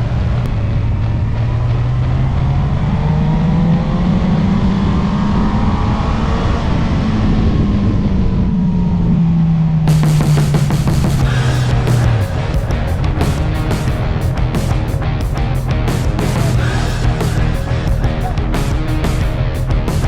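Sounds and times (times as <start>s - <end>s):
motorcycle engine running: 9.9s - 20.0s.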